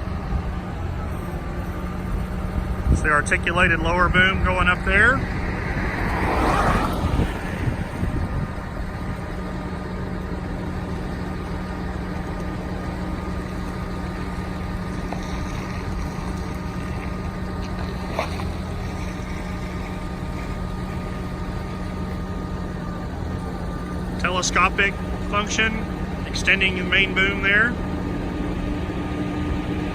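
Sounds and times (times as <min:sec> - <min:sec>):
diesel truck engine running: 0:00.0 - 0:29.9
hydraulic pump whine: 0:00.0 - 0:29.9.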